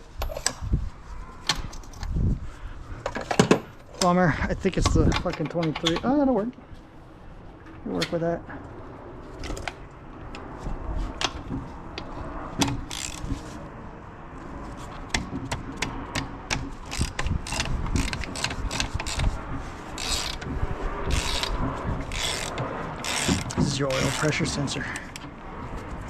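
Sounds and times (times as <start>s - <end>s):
ratchet wrench clicking: 12.6s - 13.3s, 16.5s - 19.3s, 20.0s - 24.5s.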